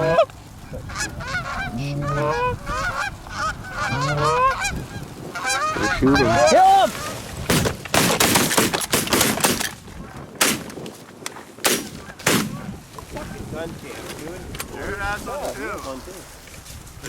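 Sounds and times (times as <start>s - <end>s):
goose honking and clucking: 0.0s - 7.3s
shotgun shots: 7.5s - 9.7s, 10.4s - 10.8s, 11.6s - 12.7s.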